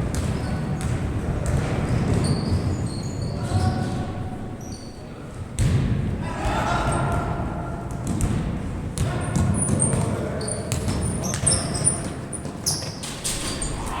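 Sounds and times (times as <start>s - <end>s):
players' voices: 3.0s - 12.8s.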